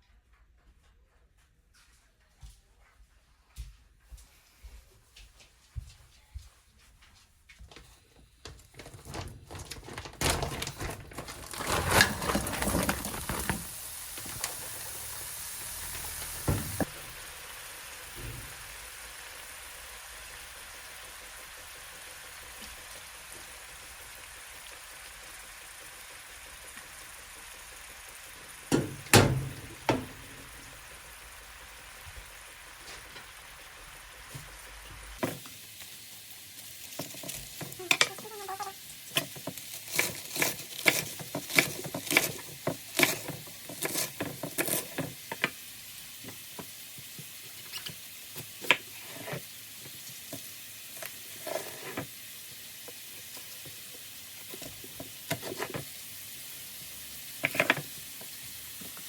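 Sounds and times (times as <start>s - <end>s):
food sizzling in a pan: 11.4s - 59.0s
utensils knocking cookware: 28.7s - 30.5s.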